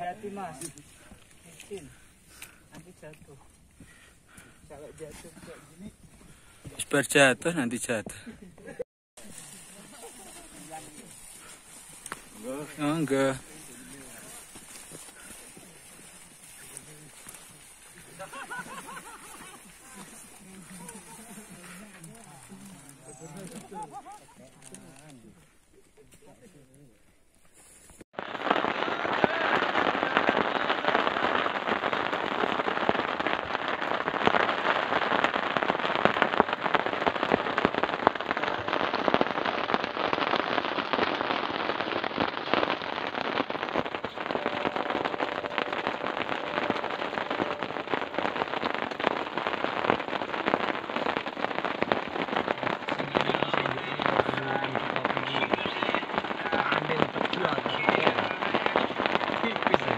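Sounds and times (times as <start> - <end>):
heavy rain falling: 28.3 - 59.9.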